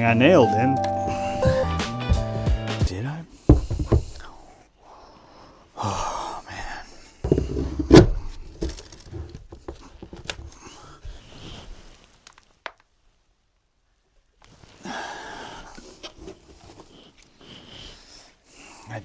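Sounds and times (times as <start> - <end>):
rustling: 7.3 - 13.3.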